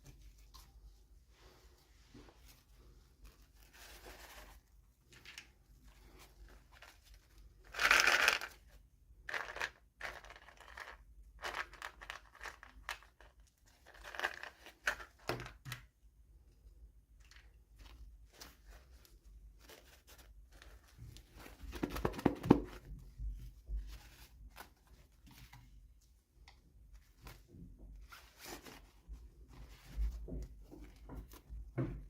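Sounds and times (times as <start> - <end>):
toy packaging crinkling and tearing: 7.2 - 15.6.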